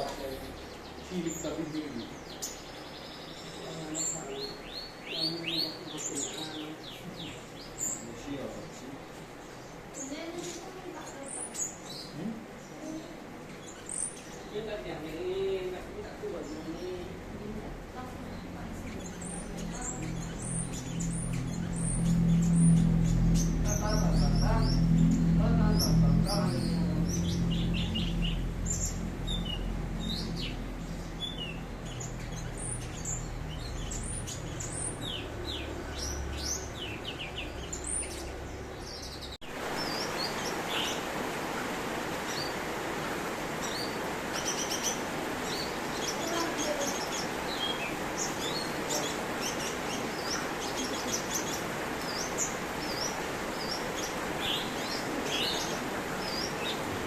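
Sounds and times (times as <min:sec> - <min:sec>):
background hiss: 0:00.0 - 0:57.0
songbirds chirping: 0:00.0 - 0:57.0
low rumble: 0:17.0 - 0:39.7.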